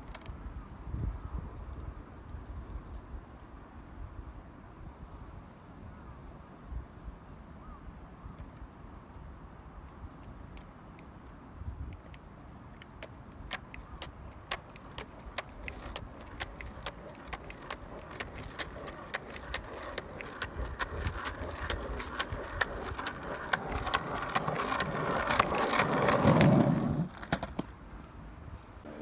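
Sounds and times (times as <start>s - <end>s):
skateboard wheels clacking on joints: 12.0s - 28.2s
skateboard rolling rumble: 12.8s - 29.0s.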